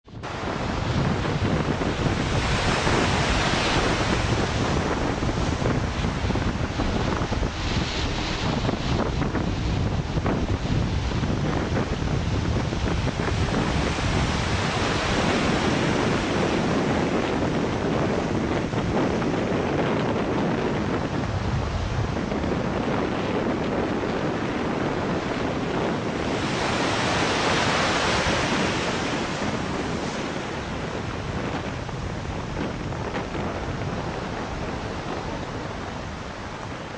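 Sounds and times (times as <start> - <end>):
steady rushing noise: 0.0 - 36.9.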